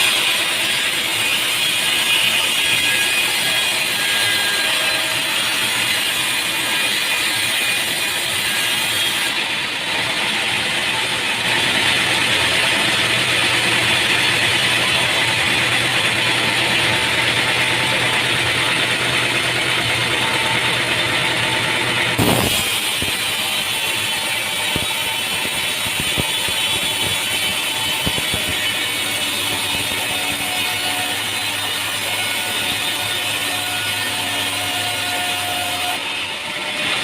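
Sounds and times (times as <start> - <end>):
machinery clattering: 11.4 - 32.8.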